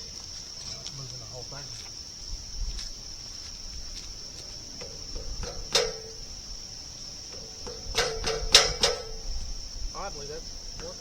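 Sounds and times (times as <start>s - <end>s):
insects droning: 0.0s - 11.0s
metallic clang with ringing: 4.8s - 9.6s.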